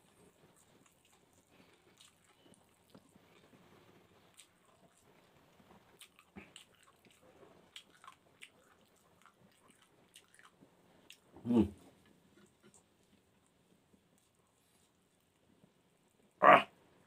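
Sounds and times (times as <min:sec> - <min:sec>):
person chewing with mouth smacks: 0:00.0 - 0:11.3
low mouth noise: 0:11.4 - 0:11.9.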